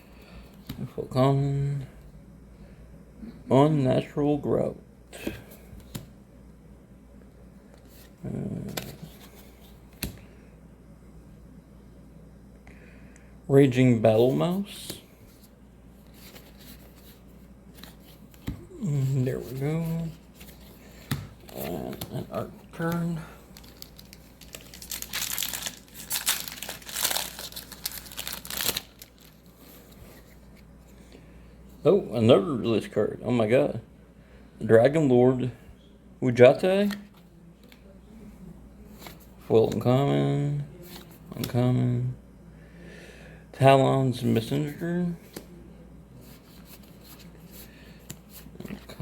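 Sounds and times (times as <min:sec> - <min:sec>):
foil wrapper crinkling: 0:22.8 - 0:29.5.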